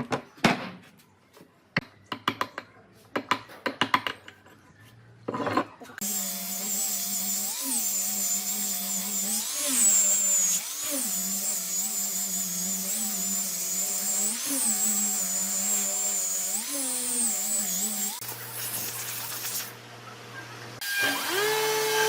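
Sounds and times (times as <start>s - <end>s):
power tool motor running on wood: 6.0s - 19.8s, 20.8s - 22.0s.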